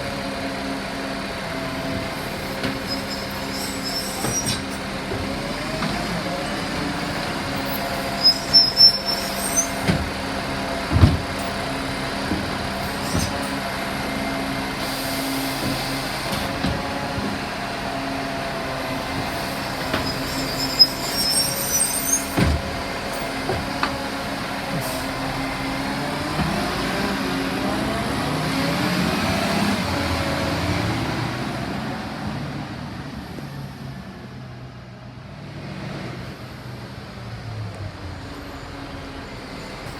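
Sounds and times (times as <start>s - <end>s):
garbage truck engine: 0.0s - 39.9s
high squeals: 2.3s - 5.0s, 7.5s - 10.2s, 19.1s - 22.4s
bins clanking and knocking: 9.8s - 13.6s, 15.6s - 17.5s, 22.2s - 25.2s.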